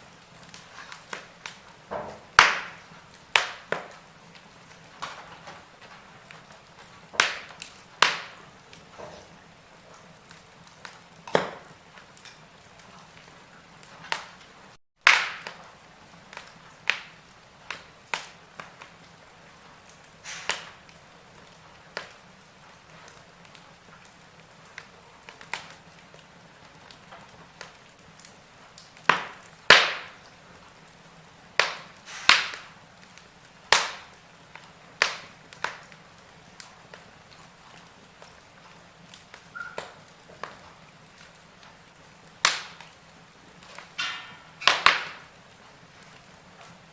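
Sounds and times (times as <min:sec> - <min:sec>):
faint steady hiss: 0:00.0 - 0:46.9
wood fire crackling and popping: 0:00.0 - 0:46.9.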